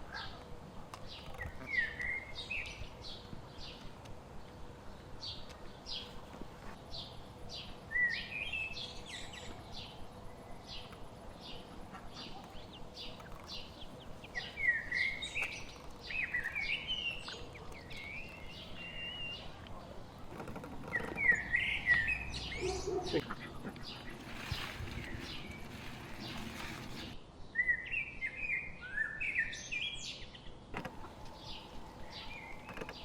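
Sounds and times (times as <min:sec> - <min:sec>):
bird warbling song: 0:00.0 - 0:03.9, 0:06.9 - 0:33.0
small birds chirping: 0:00.0 - 0:33.0.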